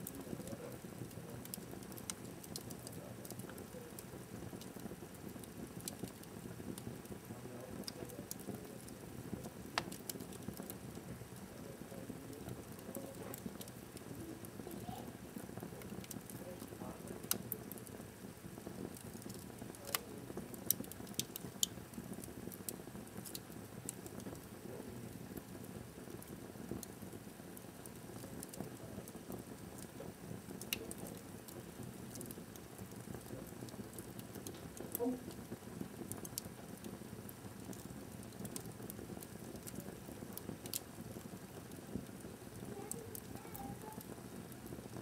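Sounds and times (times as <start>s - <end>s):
wood fire crackling and popping: 0.0s - 45.0s.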